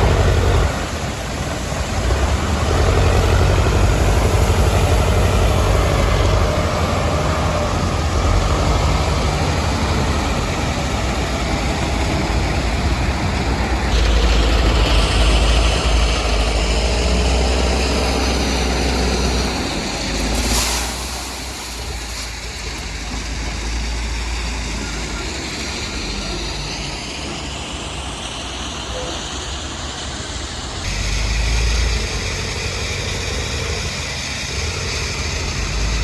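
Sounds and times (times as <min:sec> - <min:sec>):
heavy machinery engine running: 0:00.0 - 0:36.0.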